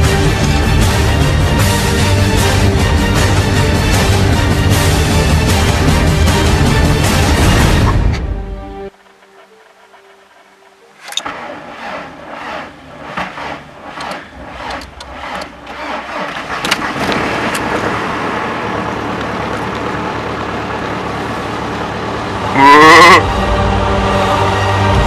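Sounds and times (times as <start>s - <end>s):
diesel engine running: 0.0s - 25.0s
starter motor cranking: 10.8s - 17.6s.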